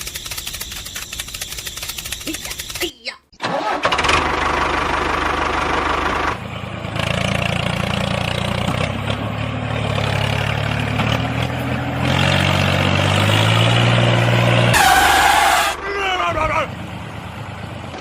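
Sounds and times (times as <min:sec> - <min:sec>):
engine idling: 0:03.4 - 0:12.2.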